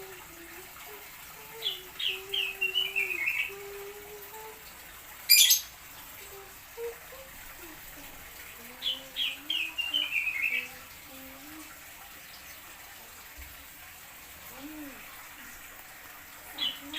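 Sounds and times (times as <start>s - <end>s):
songbird chirping: 1.5s - 3.8s, 5.3s - 6.4s, 8.7s - 10.8s.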